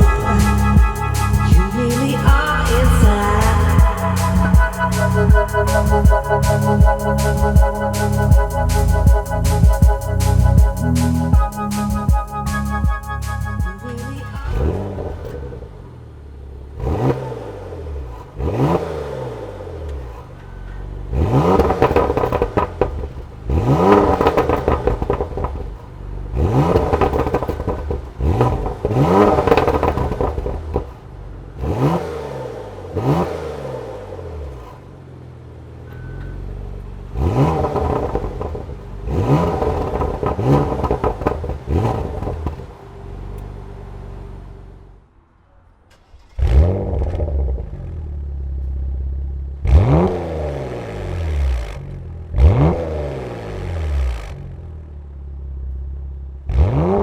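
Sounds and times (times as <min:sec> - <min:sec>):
car engine revving: 0:00.0 - 0:57.0
exhaust crackles: 0:00.0 - 0:57.0.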